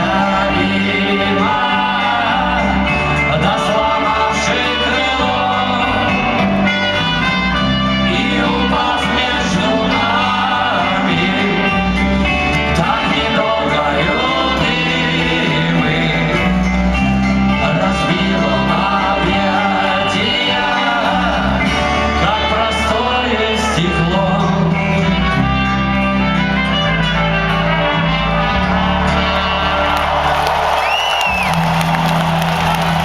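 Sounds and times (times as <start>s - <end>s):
live rock band with singing: 0.0s - 33.0s
crowd cheering: 27.6s - 33.0s
person whistling: 30.8s - 32.7s.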